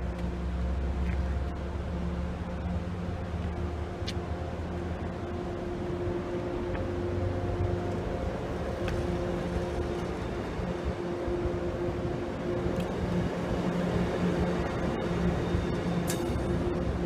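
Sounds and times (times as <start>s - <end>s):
train rolling past: 0.0s - 17.0s
wheels clicking on rails: 7.6s - 17.0s.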